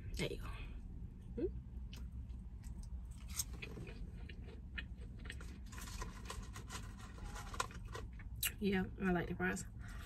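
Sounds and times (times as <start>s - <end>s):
low steady rumble: 0.0s - 10.0s
chewing and crunching: 1.9s - 8.6s.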